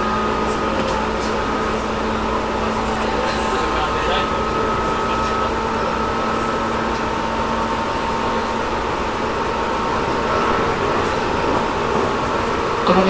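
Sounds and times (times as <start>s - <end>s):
train rolling and motor noise: 0.0s - 13.0s.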